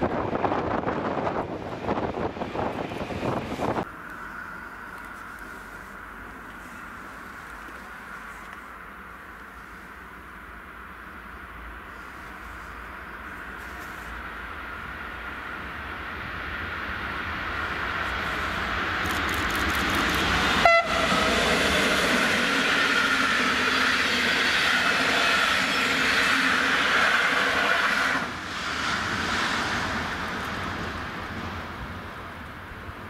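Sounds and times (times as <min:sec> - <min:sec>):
passenger train passing: 0:00.0 - 0:33.0
train horn blast: 0:20.6 - 0:24.0.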